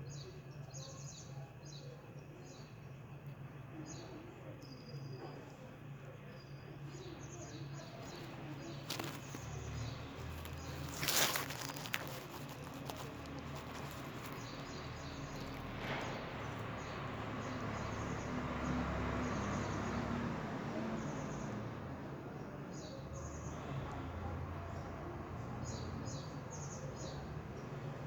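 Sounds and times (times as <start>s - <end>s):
rustling: 7.5s - 16.7s.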